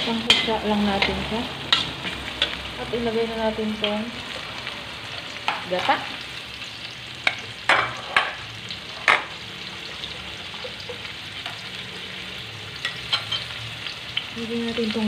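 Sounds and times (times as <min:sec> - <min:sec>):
metal spatula clanking on a pan: 0:00.0 - 0:02.6, 0:07.2 - 0:08.4, 0:09.0 - 0:09.4, 0:12.8 - 0:13.6
food sizzling in oil in a wok: 0:00.0 - 0:15.0.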